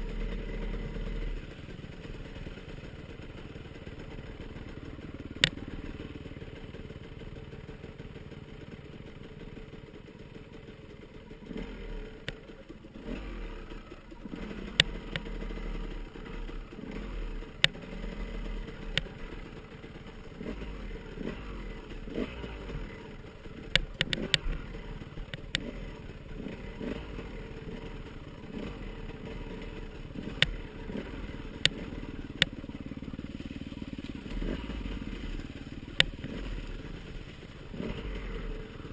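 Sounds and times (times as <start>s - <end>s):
motorcycle engines revving: 0.0s - 38.9s.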